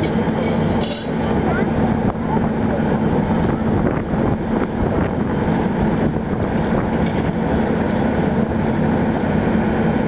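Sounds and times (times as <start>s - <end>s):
constant low hum: 0.0s - 10.0s
train rumbling on tracks: 0.0s - 10.0s.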